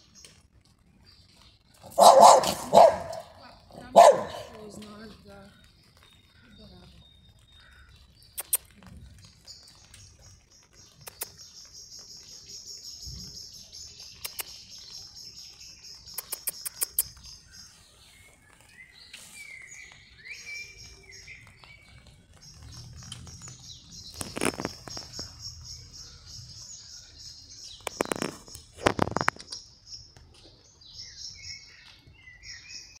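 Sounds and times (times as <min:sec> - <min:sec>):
birds chirping and trilling: 0:00.0 - 0:33.0
sharp clicks: 0:08.2 - 0:08.8, 0:11.0 - 0:11.4, 0:14.2 - 0:14.6, 0:16.1 - 0:17.2, 0:27.7 - 0:29.7.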